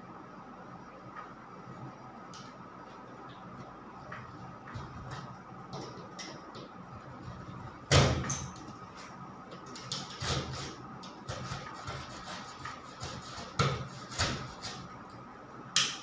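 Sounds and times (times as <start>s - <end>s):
knocks and scrapes on ceiling board: 4.2s - 15.0s.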